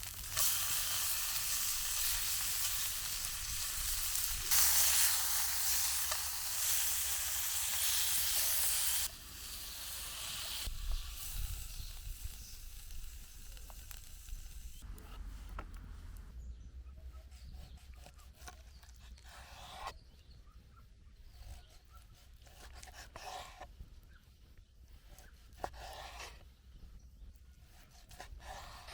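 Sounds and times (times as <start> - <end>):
food sizzling in a pan: 0.0 - 14.8.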